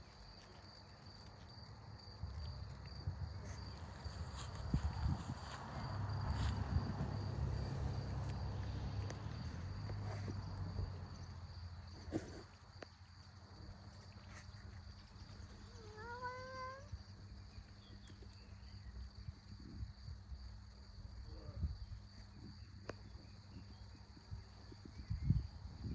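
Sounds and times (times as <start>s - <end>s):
cat meowing: 15.8s - 16.9s.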